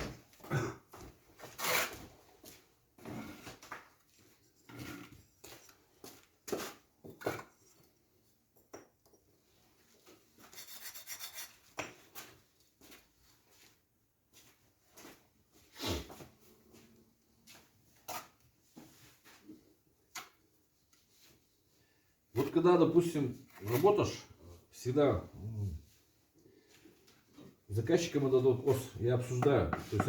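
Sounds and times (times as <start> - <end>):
trowel scraping mortar: 1.5 - 2.1, 10.5 - 11.7.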